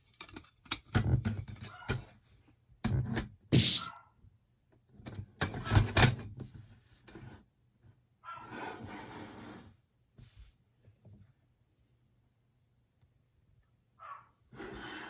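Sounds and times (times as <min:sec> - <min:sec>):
knocks and clatter of handling: 0:00.0 - 0:02.2
short scrape: 0:03.6 - 0:03.9.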